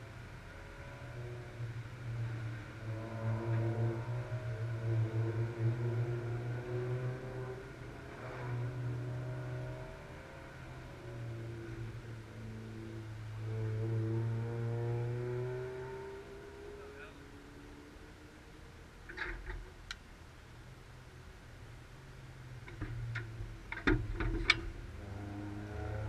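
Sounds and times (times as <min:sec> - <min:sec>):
car passing: 0:00.0 - 0:17.7, 0:24.3 - 0:26.0
distant car engines humming: 0:00.0 - 0:26.0.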